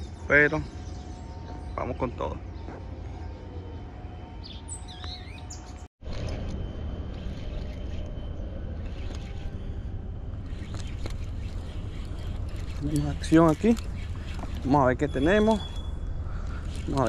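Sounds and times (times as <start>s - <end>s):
birds chirping: 0.0s - 6.4s, 7.1s - 17.0s
low outdoor rumble: 5.5s - 17.0s.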